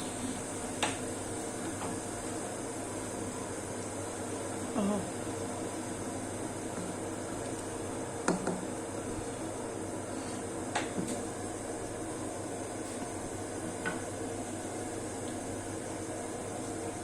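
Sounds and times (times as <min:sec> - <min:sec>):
steady kitchen hiss: 0:00.0 - 0:17.0.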